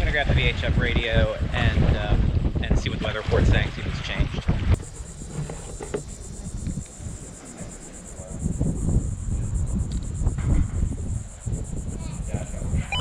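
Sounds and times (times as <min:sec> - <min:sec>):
wind buffeting microphone: 0:00.0 - 0:13.0
crickets chirping: 0:03.8 - 0:13.0.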